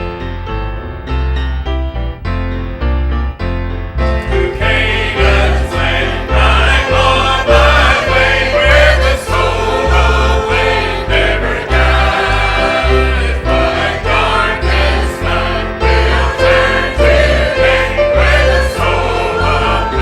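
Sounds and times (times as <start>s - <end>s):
piano: 0.0s - 20.0s
pulsing bass: 0.0s - 20.0s
choir singing a hymn: 4.2s - 20.0s.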